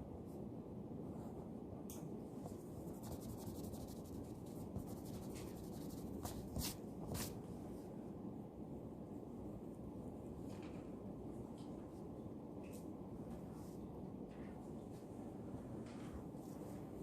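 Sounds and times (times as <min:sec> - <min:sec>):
low room noise: 0:00.0 - 0:17.0
pen scratching on paper: 0:02.9 - 0:07.3.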